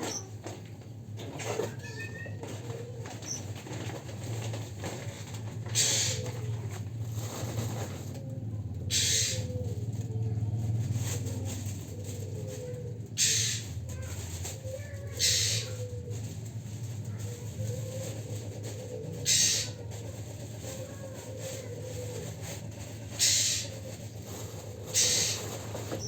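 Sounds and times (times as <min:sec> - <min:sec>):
bird rasping bursts: 0:05.7 - 0:06.3, 0:08.9 - 0:09.5, 0:13.2 - 0:13.7, 0:15.1 - 0:15.9, 0:19.2 - 0:19.8, 0:23.1 - 0:23.9, 0:24.8 - 0:26.0.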